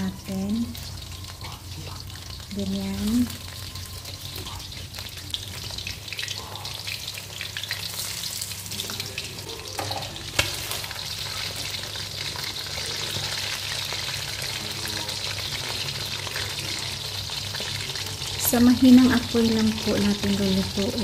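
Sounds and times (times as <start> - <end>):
chicken frying in hot oil: 0.0 - 21.0
metal tongs turning food: 7.6 - 13.3.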